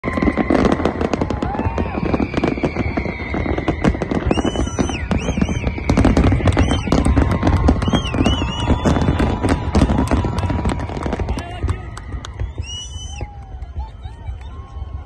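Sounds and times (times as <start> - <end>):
fireworks bursting: 0.0 - 15.0
high gliding whistles: 1.7 - 11.3, 12.2 - 13.4.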